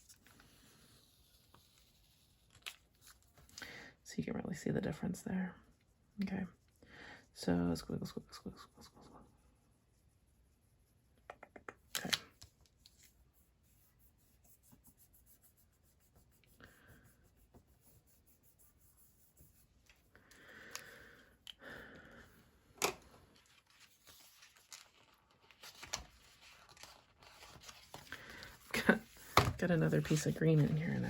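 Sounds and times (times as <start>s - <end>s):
paper rustling and scratching: 0.0s - 3.5s, 12.0s - 20.1s, 23.2s - 31.0s.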